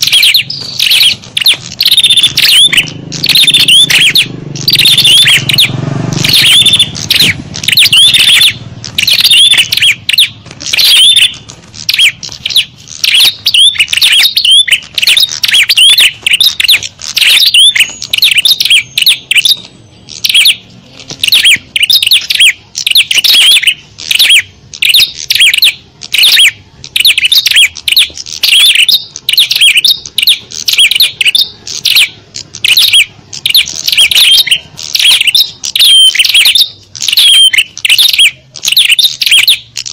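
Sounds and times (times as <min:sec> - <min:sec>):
songbirds chirping rapidly: 0:00.0 - 0:39.9.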